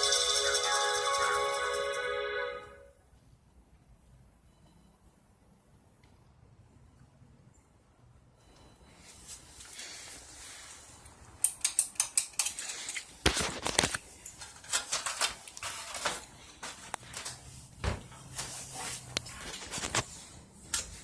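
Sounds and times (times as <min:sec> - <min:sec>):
faint low hum: 0:02.8 - 0:11.3.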